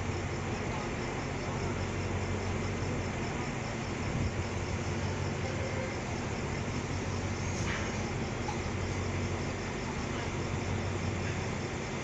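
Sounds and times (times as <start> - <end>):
diesel train humming: 0.0 - 12.0
insects chirping: 0.0 - 12.0.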